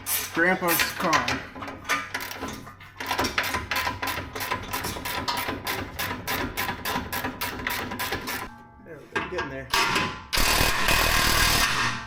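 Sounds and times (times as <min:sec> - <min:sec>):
power tool hammering rattle: 0:09.8 - 0:12.0
power tool whine: 0:10.4 - 0:12.0.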